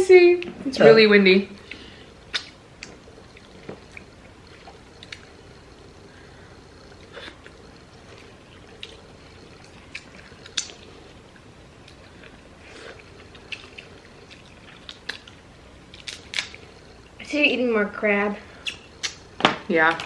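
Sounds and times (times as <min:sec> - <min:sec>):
wet eating sounds: 0:01.5 - 0:17.2, 0:18.4 - 0:20.0
crab shells clicking and squishing: 0:13.4 - 0:16.6.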